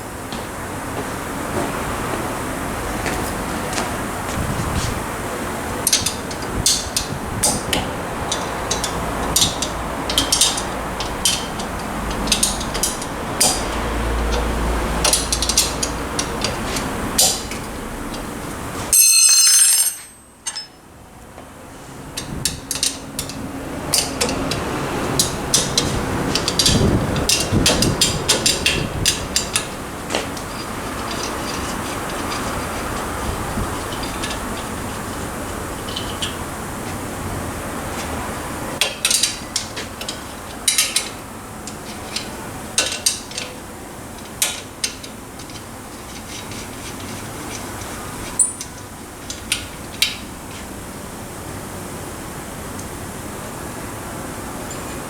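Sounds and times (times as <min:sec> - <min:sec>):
steady background hiss: 0:00.0 - 0:55.0
hand tools clinking on metal: 0:05.8 - 0:20.8, 0:22.1 - 0:36.6, 0:38.8 - 0:50.7.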